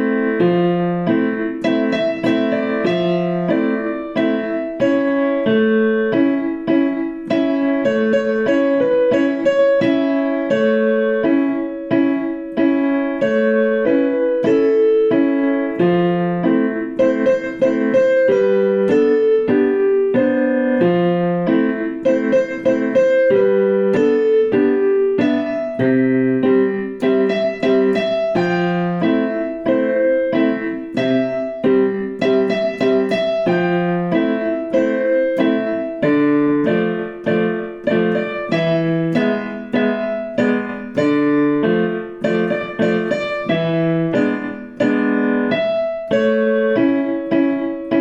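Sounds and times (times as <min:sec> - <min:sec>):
solo piano playing: 0:00.0 - 0:48.0.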